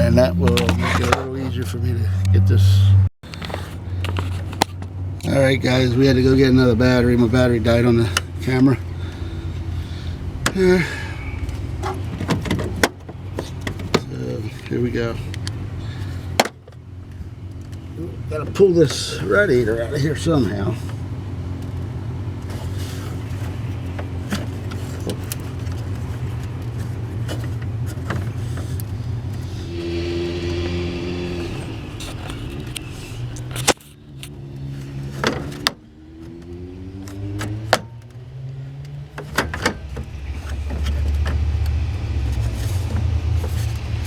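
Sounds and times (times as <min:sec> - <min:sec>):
low motor hum: 0:19.4 - 0:44.0
gliding tones: 0:29.3 - 0:33.8.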